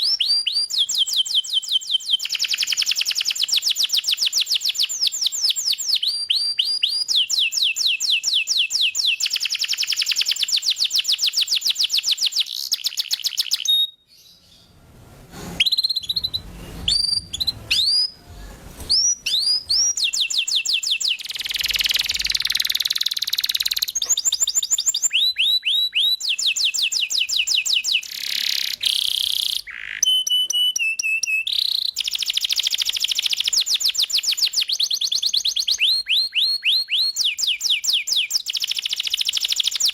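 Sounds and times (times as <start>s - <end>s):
canary singing trills: 15.6s - 18.2s.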